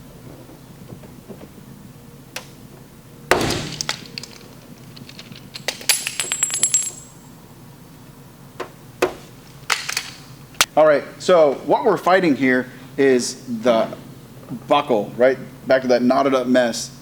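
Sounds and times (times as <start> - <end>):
small parts clicking: 3.7 - 6.9
metallic clinks and rattles: 3.7 - 7.3.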